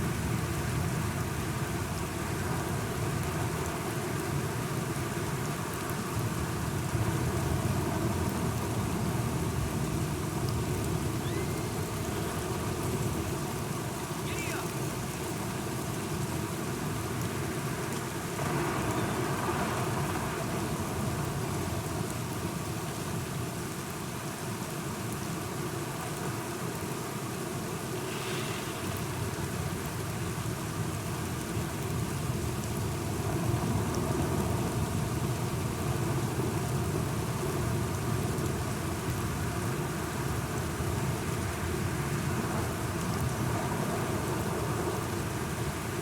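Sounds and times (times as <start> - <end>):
steady rain falling: 0.0 - 46.0.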